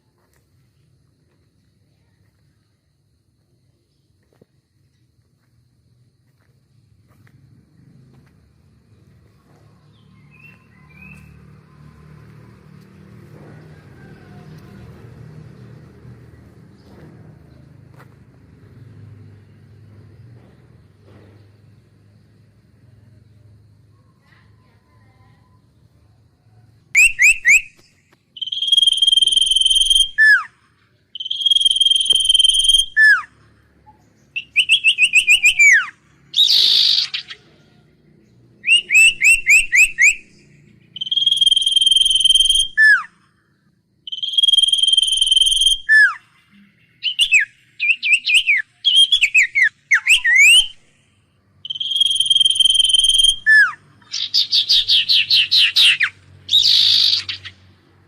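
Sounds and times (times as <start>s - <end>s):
songbird whistling: 9.9s - 11.8s, 26.9s - 37.5s, 38.6s - 43.2s, 44.0s - 51.0s, 51.6s - 57.6s.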